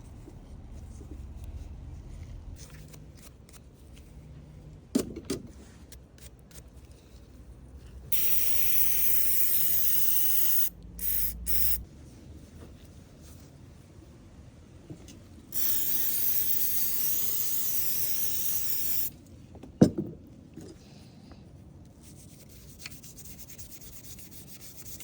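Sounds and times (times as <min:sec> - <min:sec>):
pressurised spray hissing: 0:08.1 - 0:11.8, 0:15.6 - 0:19.1.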